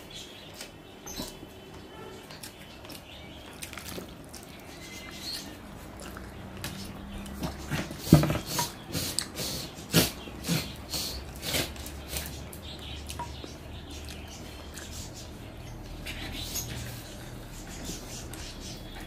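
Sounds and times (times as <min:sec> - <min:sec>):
person chewing: 0:02.4 - 0:12.4.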